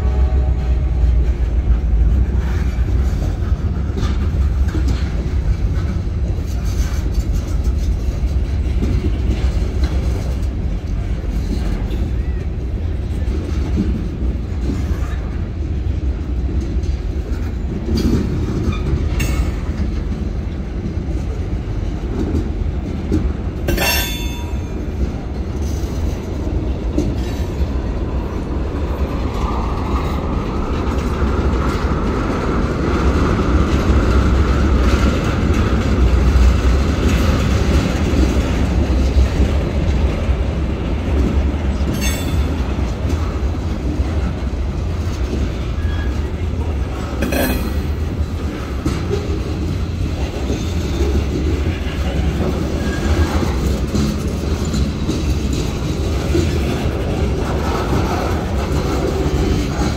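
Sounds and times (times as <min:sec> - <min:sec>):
train wheels rumbling over rails: 0:00.0 - 0:59.9
sharp metal clank: 0:23.7 - 0:24.7.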